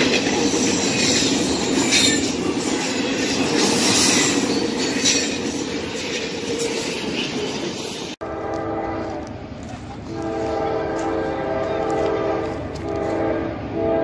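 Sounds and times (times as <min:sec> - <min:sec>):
train wheels on rails: 0:00.0 - 0:14.0
locomotive horn chord: 0:08.2 - 0:09.4, 0:10.1 - 0:14.0.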